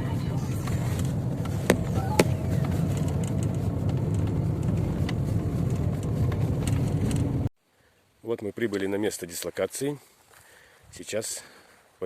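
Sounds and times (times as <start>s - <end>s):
car engine and road rumble: 0.0s - 7.5s
sharp knocks: 1.6s - 2.4s.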